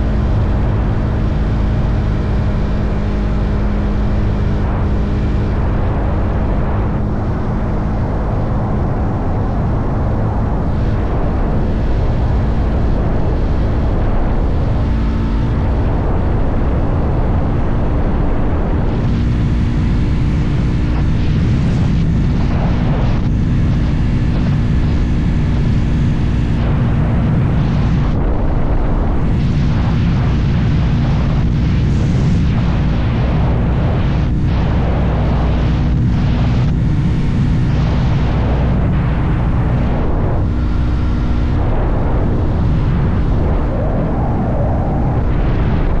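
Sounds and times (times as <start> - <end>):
motorcycle engine cruising: 0.0 - 46.0
wind on microphone: 0.0 - 46.0.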